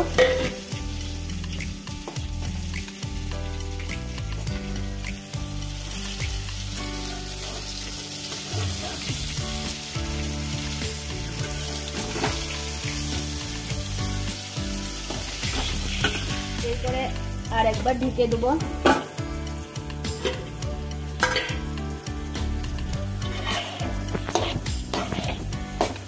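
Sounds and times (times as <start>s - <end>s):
background music: 0.0s - 26.0s
eggplant slices sizzling in oil: 0.0s - 26.0s
metal spatula scraping and clacking: 21.2s - 21.7s, 23.2s - 26.0s.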